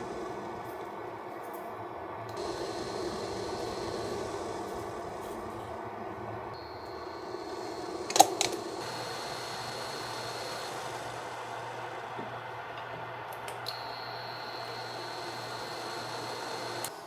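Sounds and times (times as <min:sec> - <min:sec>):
high whine: 0:02.3 - 0:16.9
faint clicks: 0:06.8 - 0:17.0.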